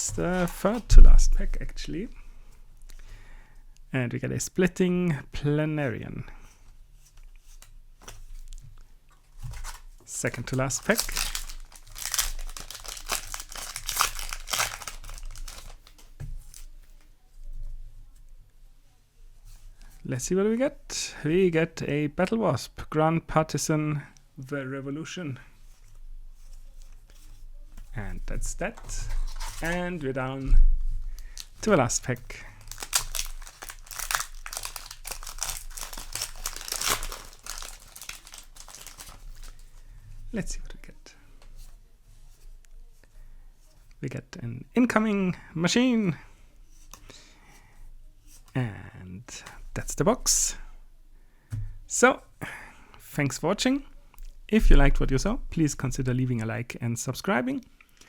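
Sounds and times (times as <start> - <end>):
foil wrapper tearing and crinkling: 9.5 - 16.7, 31.2 - 39.8.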